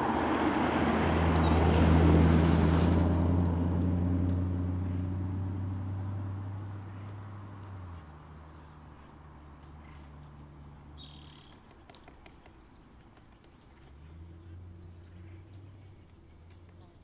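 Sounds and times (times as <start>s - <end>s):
low engine hum: 0.0s - 17.0s
bird call: 10.9s - 12.9s.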